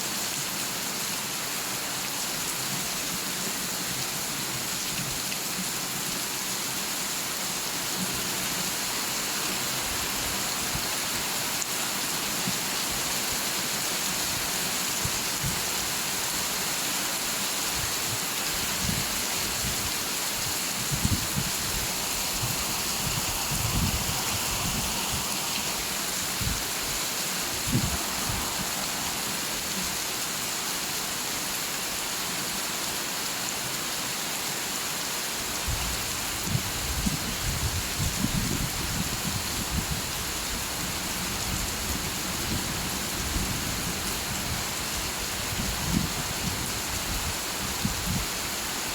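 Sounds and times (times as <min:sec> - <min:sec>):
steady rain: 0:00.0 - 0:48.9.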